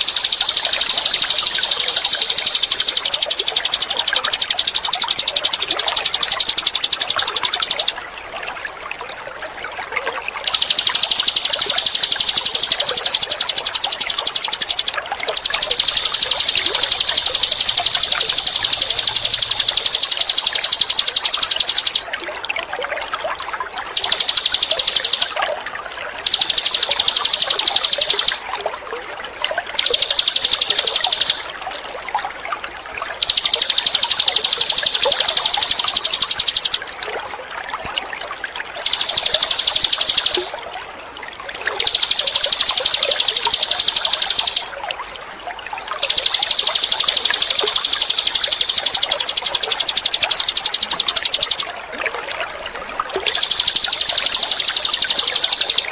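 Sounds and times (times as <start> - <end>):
songbird trilling: 0.0 - 8.0, 10.4 - 22.2, 23.9 - 25.4, 26.2 - 28.5, 29.8 - 31.5, 33.2 - 36.9, 38.8 - 40.6, 41.7 - 44.8, 46.0 - 51.7, 53.2 - 55.9
trickling water: 0.0 - 55.9.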